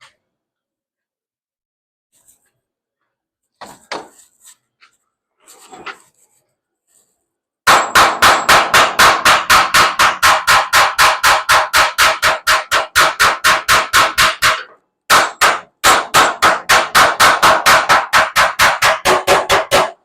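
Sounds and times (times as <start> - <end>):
hammer striking metal: 7.7 - 20.0.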